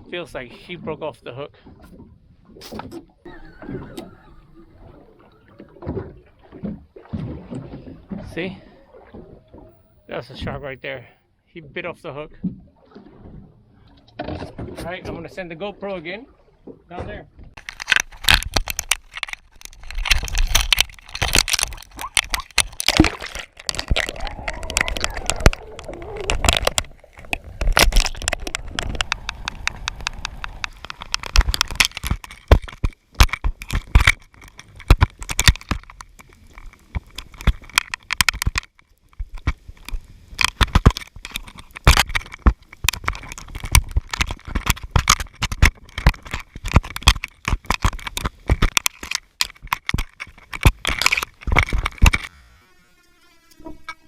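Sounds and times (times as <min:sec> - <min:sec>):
underwater crackling and clicks: 0:00.0 - 0:10.2, 0:12.4 - 0:52.3
water rushing: 0:03.2 - 0:10.7, 0:20.1 - 0:32.4.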